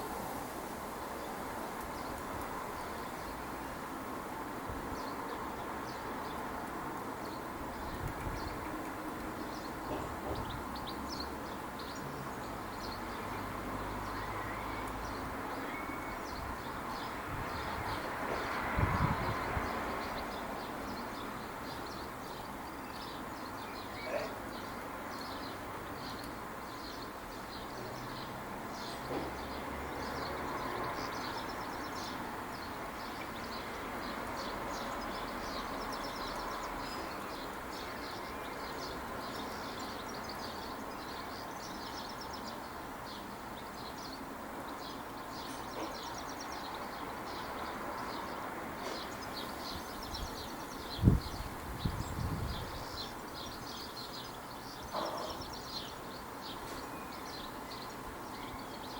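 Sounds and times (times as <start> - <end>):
birds chirping and twittering: 14.0 - 58.9.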